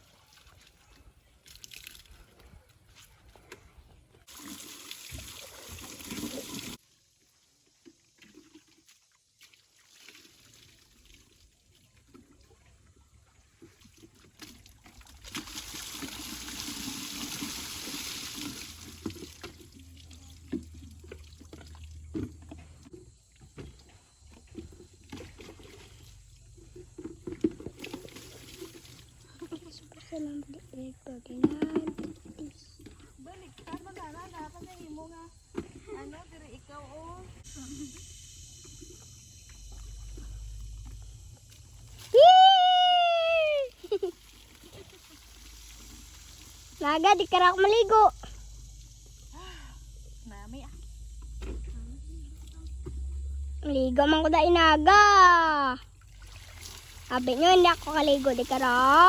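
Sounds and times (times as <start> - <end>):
water pouring and splashing: 0.0 - 35.0, 38.5 - 49.2, 55.2 - 59.0
faint water trickles: 0.0 - 59.0.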